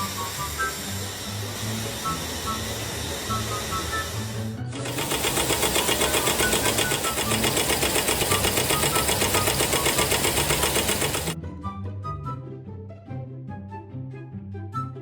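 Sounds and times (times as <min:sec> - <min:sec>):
machine clattering rapidly: 0:00.0 - 0:11.4
background music: 0:00.0 - 0:15.0.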